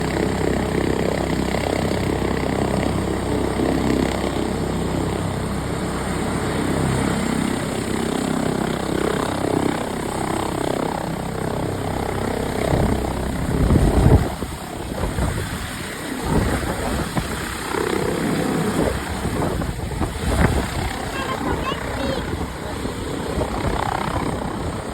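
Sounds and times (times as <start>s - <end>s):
helicopter rotor and turbine: 0.0s - 24.9s.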